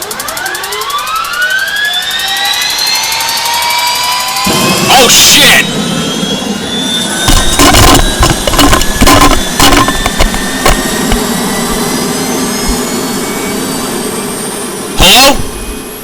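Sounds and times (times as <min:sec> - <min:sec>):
air conditioner whining: 0:00.0 - 0:16.0
sharp bangs and crackles: 0:04.5 - 0:12.0.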